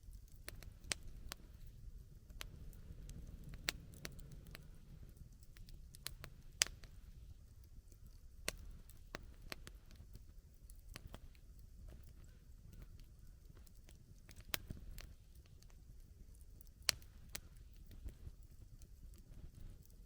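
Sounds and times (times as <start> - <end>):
low steady rumble: 0.0 - 10.6
campfire crackling: 0.0 - 20.0.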